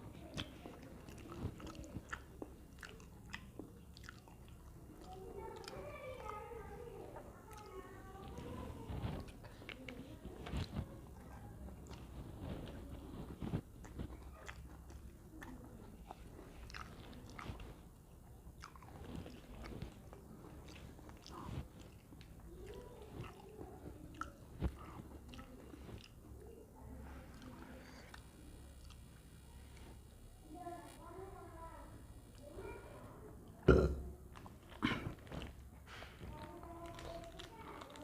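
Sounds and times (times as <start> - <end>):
person chewing and biting food: 0.4 - 4.7, 13.4 - 17.6, 18.6 - 23.4
small crunches and clicks: 34.4 - 38.0.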